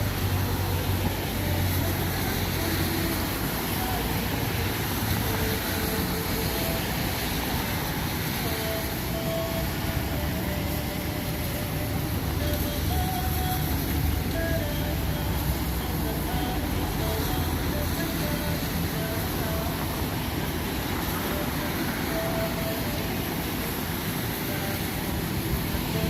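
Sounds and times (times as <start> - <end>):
traffic on a wet road: 0.0 - 26.0.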